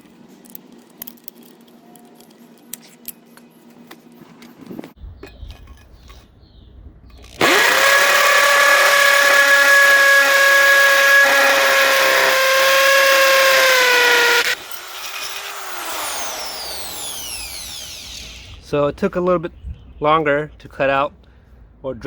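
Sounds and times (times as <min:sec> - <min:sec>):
hammer drill drilling into block: 0:07.3 - 0:18.6.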